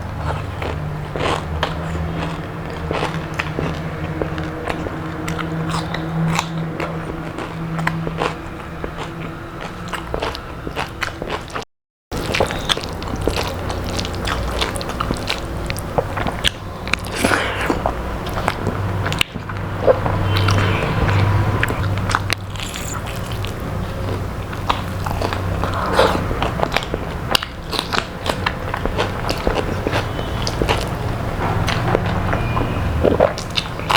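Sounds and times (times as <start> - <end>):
chewing crispy food: 0.0 - 33.9
mouth clicks: 19.9 - 23.8.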